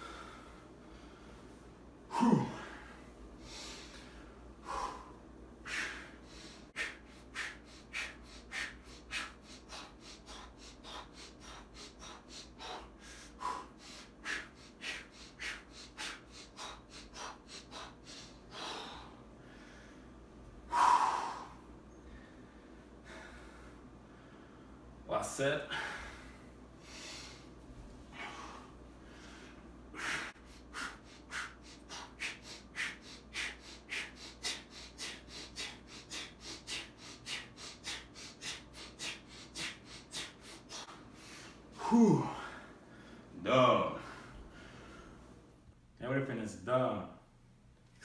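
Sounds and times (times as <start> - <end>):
man breathing hard: 0.0 - 25.0, 25.6 - 45.6
man grunting: 2.1 - 2.8, 41.8 - 42.6.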